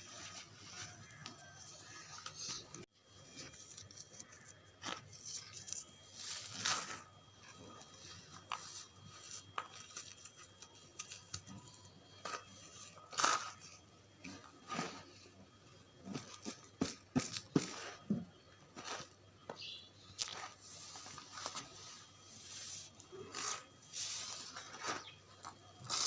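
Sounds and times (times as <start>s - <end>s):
charcoal crumbling and crunching: 4.0s - 7.4s, 23.1s - 26.0s.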